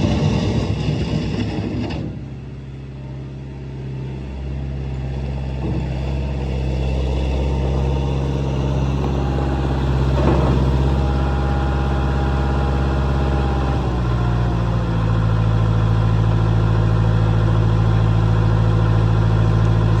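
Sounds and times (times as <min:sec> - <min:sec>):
wheel loader engine running: 0:00.0 - 0:20.0.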